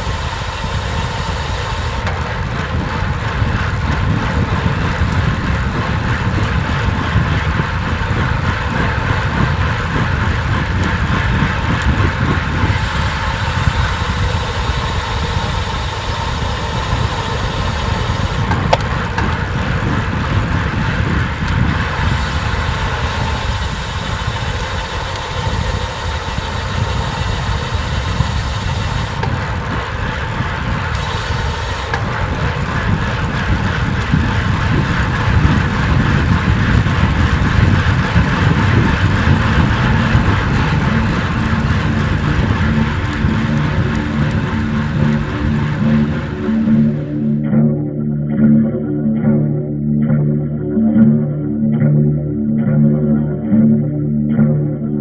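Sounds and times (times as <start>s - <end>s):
high hiss: 0.0s - 2.1s, 12.5s - 18.9s, 21.7s - 29.4s, 30.9s - 32.2s
wind and road noise rumble: 0.0s - 47.3s.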